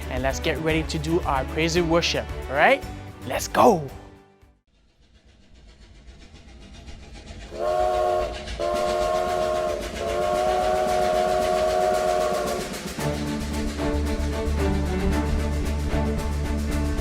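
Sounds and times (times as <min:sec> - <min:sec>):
train clatter: 0:04.8 - 0:17.0
train horn blasts: 0:07.5 - 0:12.7.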